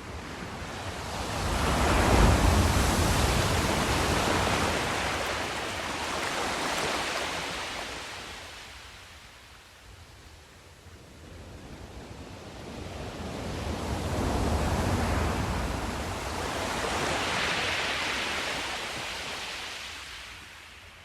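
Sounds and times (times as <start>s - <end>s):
ocean wave breaking on shore: 0.3s - 8.8s, 13.4s - 20.4s.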